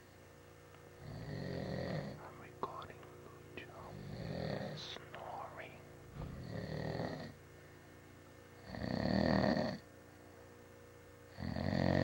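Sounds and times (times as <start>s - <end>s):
person snoring: 1.0s - 2.8s, 3.8s - 7.3s, 8.6s - 9.8s, 11.3s - 12.0s.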